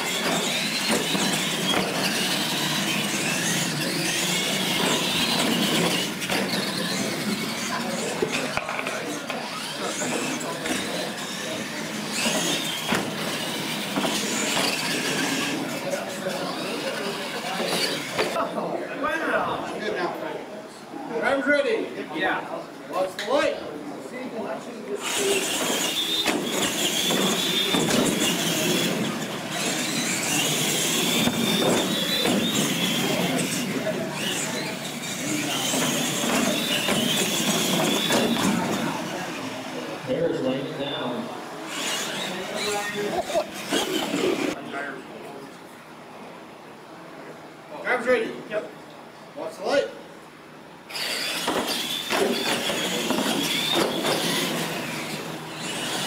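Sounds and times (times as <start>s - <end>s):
toy truck motor and gear whine: 0.0s - 18.4s, 24.9s - 40.2s, 41.6s - 44.6s, 50.9s - 56.0s
tyres rolling on concrete: 0.0s - 18.4s, 25.1s - 40.1s, 41.7s - 44.6s, 51.0s - 56.0s
tyres on concrete: 25.1s - 39.2s, 50.9s - 56.0s.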